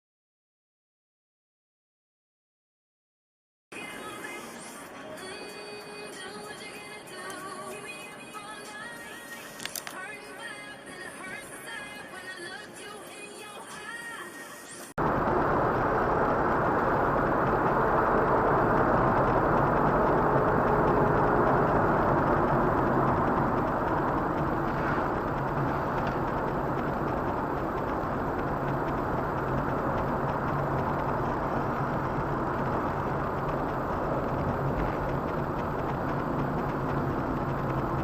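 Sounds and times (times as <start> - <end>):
car road and engine noise: 15.0 - 38.0.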